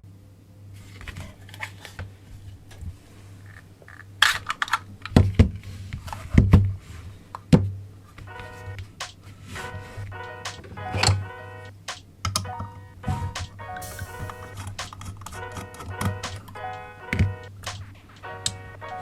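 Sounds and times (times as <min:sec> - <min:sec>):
pitched musical sound: 0:12.4 - 0:19.0.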